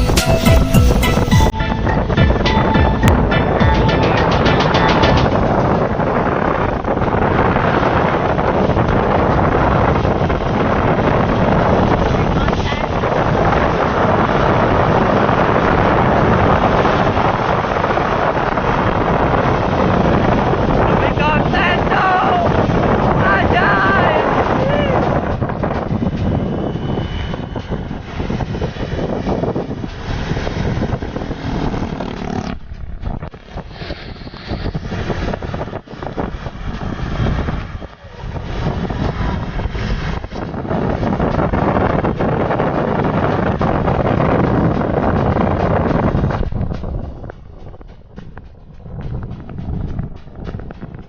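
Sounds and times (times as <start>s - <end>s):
truck engine running: 25.1s - 51.0s.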